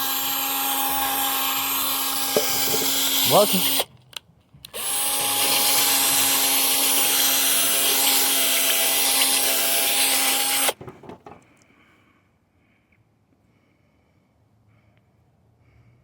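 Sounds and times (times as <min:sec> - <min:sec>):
electric power tool whirring: 0:00.0 - 0:03.9, 0:04.7 - 0:10.8.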